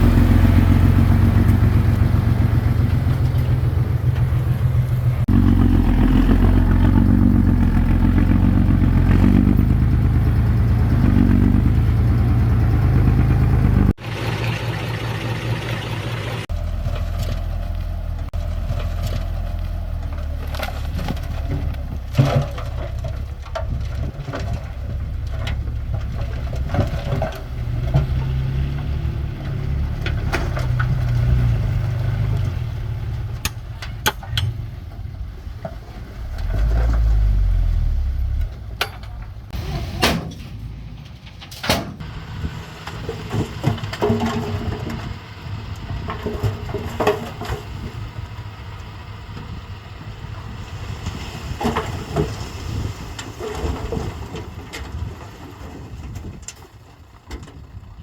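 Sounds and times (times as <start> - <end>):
bulldozer engine running: 0.0 - 58.0
metal clanks and knocks: 16.5 - 31.5, 33.3 - 37.3, 38.2 - 42.0, 42.9 - 45.2, 45.9 - 47.8.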